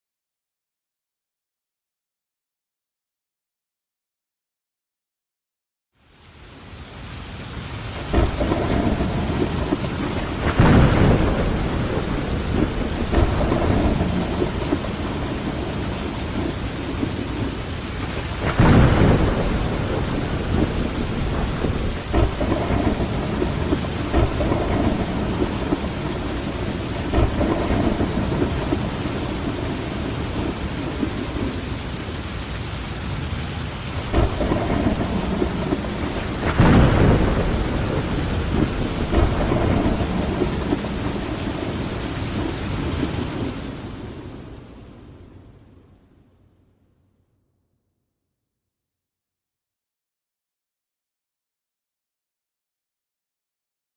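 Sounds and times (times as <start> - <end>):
heavy rain: 6.0 - 46.7
thunder rolling: 7.9 - 32.4, 33.0 - 45.5.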